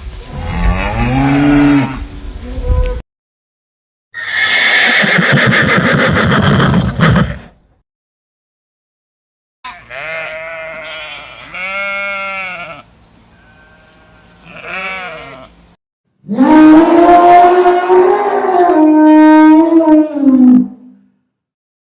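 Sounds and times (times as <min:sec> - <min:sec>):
farm animals bleating: 0:09.7 - 0:15.6.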